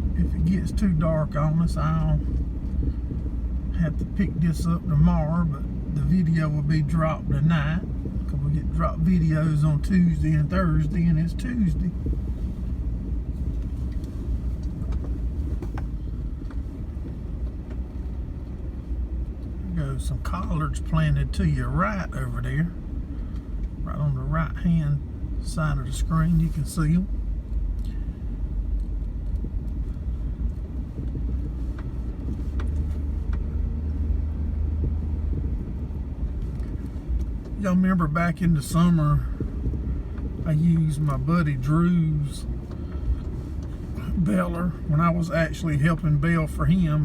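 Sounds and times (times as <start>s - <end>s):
vehicle engine and road rumble: 0.0s - 47.0s
light clicks and rattles: 27.4s - 34.1s.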